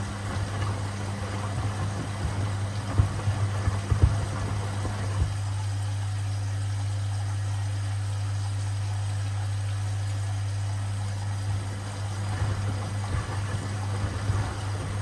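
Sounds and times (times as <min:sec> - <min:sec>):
knocks in washing machine drum: 0:00.0 - 0:05.4, 0:12.3 - 0:15.0
washing machine spin hum: 0:00.0 - 0:15.0.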